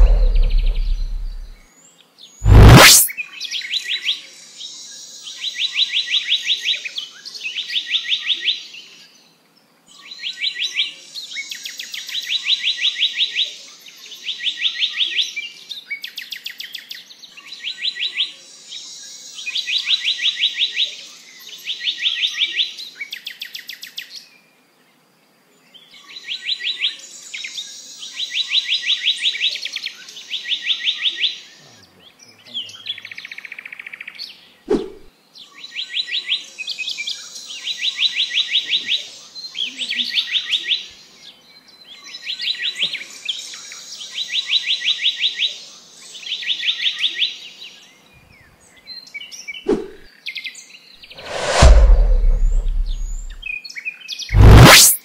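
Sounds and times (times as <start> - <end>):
bird singing sharp notes: 0.0 - 1.6.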